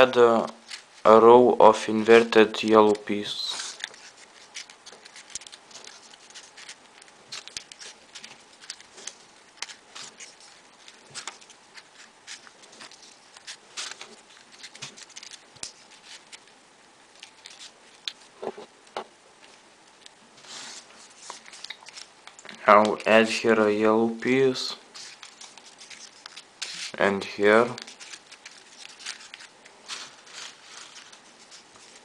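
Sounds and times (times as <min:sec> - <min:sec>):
paper ticks and rustles: 0:00.0 - 0:01.2, 0:02.2 - 0:23.1, 0:24.2 - 0:32.0
paper clicks: 0:02.7 - 0:18.3, 0:21.1 - 0:23.0, 0:25.0 - 0:27.0, 0:27.6 - 0:32.0.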